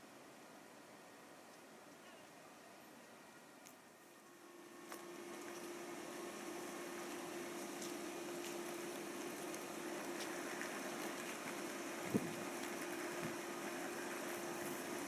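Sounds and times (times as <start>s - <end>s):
electric train humming: 4.2s - 15.0s.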